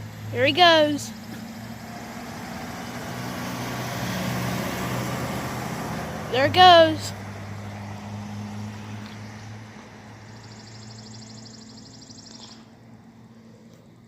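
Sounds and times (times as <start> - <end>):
truck engine humming: 0.0 - 14.0.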